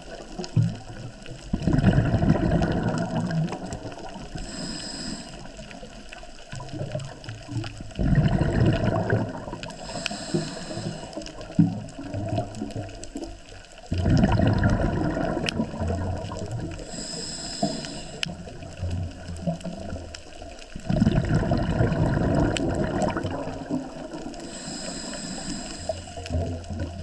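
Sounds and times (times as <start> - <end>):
exhaled bubbles surging underwater: 0.0 - 27.0
diver breathing through regulator: 4.2 - 5.7, 8.0 - 11.5, 16.7 - 18.4, 24.2 - 26.3.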